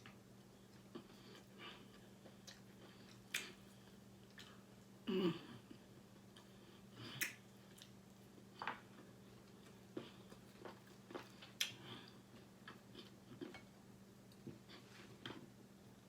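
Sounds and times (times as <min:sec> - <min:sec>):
faint chewing: 0:00.0 - 0:04.9, 0:05.7 - 0:13.7
steady low hum: 0:00.0 - 0:16.0
mouth clicks and smacks: 0:07.1 - 0:08.0.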